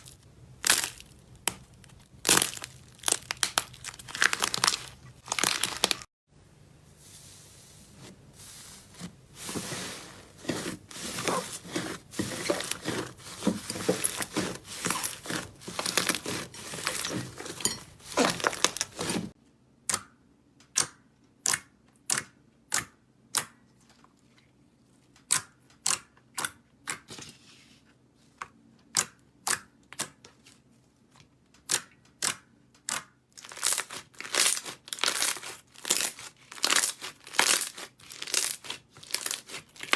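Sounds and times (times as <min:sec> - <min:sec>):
slime crackling and crunching: 0:00.0 - 0:06.1, 0:10.4 - 0:19.4, 0:33.4 - 0:39.9.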